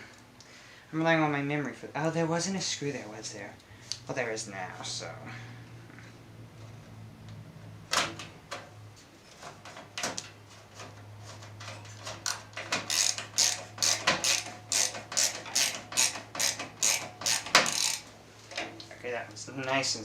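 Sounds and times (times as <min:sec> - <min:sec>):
screwdriver turning a screw: 0:12.2 - 0:18.1.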